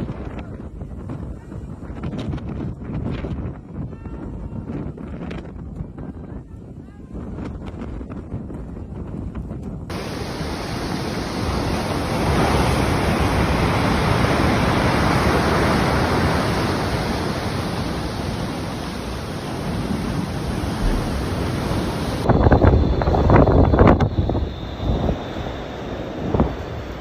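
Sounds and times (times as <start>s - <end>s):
loud steady rushing noise: 9.9s - 27.0s.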